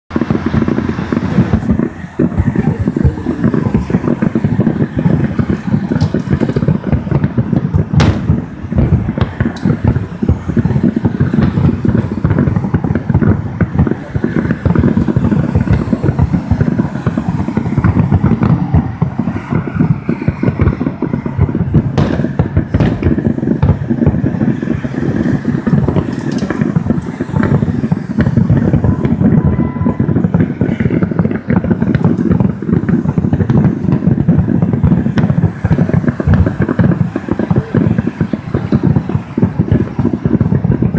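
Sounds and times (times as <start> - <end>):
fireworks booming: 0.1 - 40.9
sharp firework cracks: 0.1 - 40.9.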